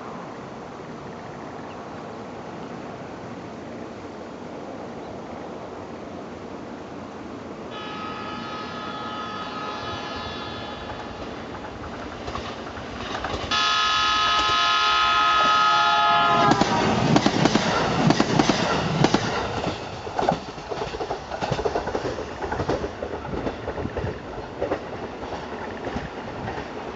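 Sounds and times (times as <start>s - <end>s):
electric train horn blast: 7.7s - 11.6s, 13.5s - 17.1s
train wheels clacking over rail joints: 10.8s - 15.7s, 16.3s - 26.9s.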